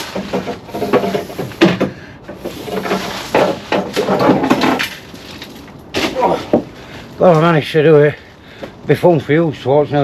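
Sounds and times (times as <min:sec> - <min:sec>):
panel knocking and scraping: 0:00.0 - 0:04.9.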